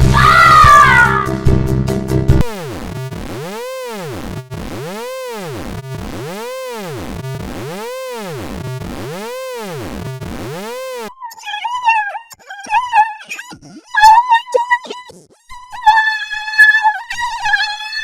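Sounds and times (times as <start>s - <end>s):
synthesized warbling tone: 2.4s - 11.4s.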